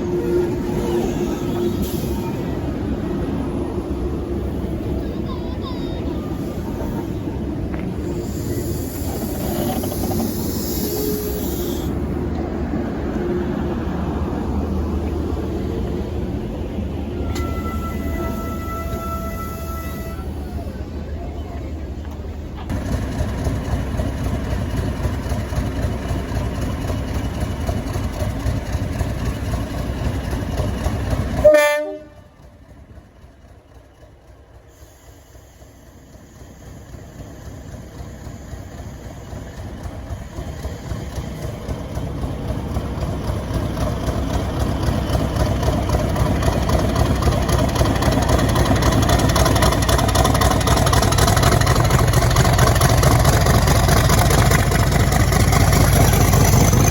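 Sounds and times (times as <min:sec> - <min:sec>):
diesel locomotive engine rumbling: 0:00.0 - 0:56.9
diesel train approaching: 0:00.0 - 0:56.9
train horn blast: 0:17.1 - 0:20.4, 0:31.4 - 0:32.4.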